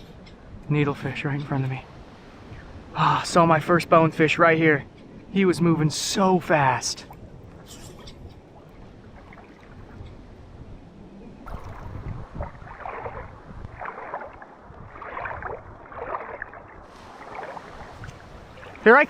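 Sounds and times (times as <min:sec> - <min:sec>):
wind rumble on microphone: 0:00.0 - 0:03.0, 0:06.8 - 0:19.0
footsteps wading through water: 0:07.0 - 0:10.5, 0:11.4 - 0:19.0.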